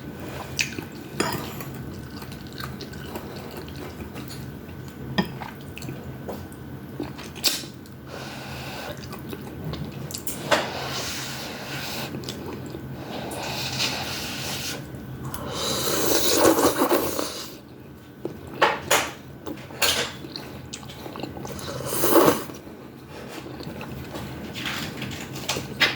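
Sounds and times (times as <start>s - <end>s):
moist chewing and mouth sounds: 0.4s - 8.0s, 8.9s - 10.4s, 12.0s - 12.9s, 19.4s - 25.7s.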